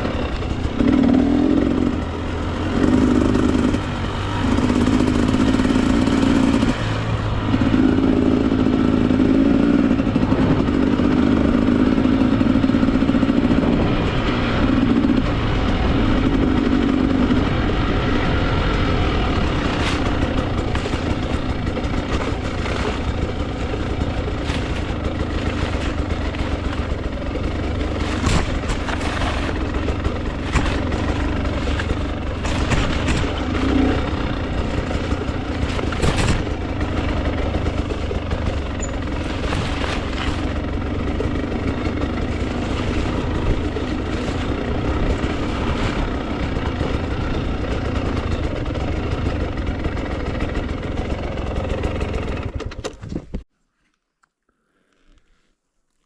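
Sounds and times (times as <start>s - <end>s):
two-stroke dirt bike engine: 0.0s - 53.4s
sharp knocks: 34.6s - 36.6s.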